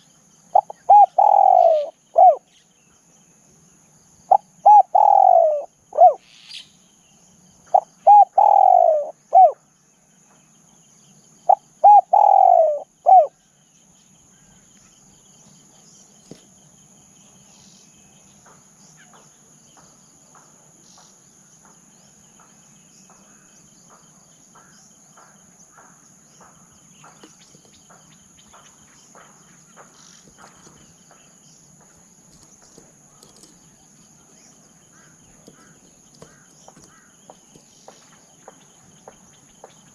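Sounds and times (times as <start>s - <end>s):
dove cooing: 0.5s - 2.5s, 4.3s - 6.2s, 7.7s - 9.6s, 11.5s - 13.4s.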